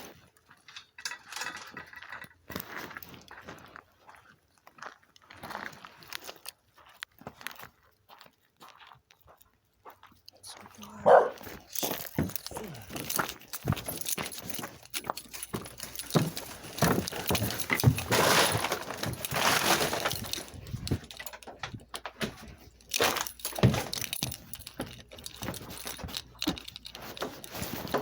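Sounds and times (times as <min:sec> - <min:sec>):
household objects knocking and clinking: 0:11.1 - 0:28.0.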